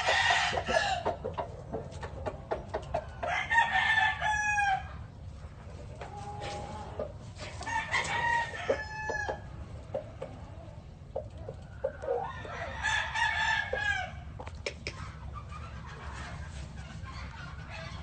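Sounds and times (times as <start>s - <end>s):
roosters crowing: 0.0s - 1.4s, 3.0s - 5.1s, 6.0s - 10.8s, 11.8s - 14.4s
rooster clucks: 0.0s - 4.8s, 5.6s - 18.0s.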